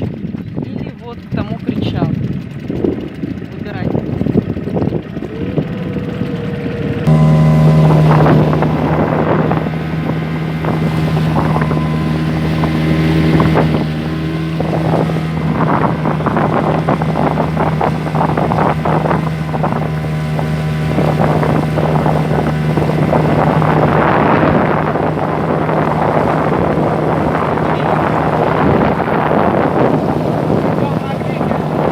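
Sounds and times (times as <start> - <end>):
outboard motor droning: 0.0 - 31.9
water splashing against hull: 7.1 - 31.9
wind on microphone: 7.1 - 31.9.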